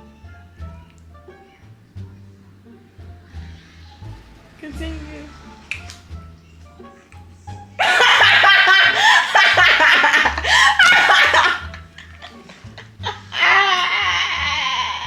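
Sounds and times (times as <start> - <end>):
loud hearty laughter: 7.8 - 15.0.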